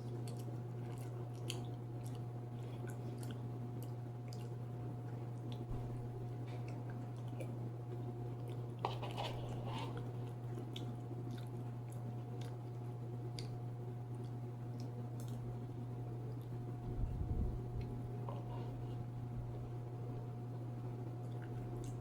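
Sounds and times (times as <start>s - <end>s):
steady low hum: 0.0s - 22.0s
person chewing and biting food: 6.4s - 15.5s.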